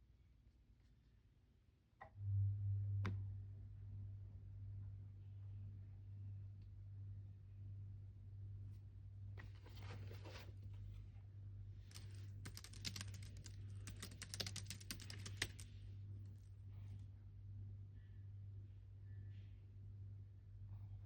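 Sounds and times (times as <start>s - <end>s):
low steady hum: 2.0s - 21.0s
computer keyboard typing: 11.9s - 15.7s.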